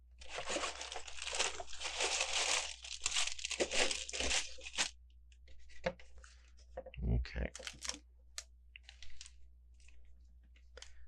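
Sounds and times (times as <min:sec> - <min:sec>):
plastic bags crinkling: 0:00.2 - 0:04.9.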